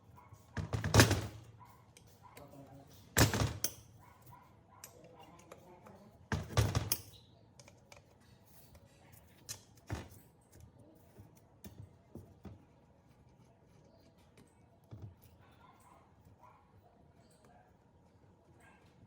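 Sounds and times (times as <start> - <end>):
tools clicking and tapping: 3.2 - 3.9, 4.8 - 10.7.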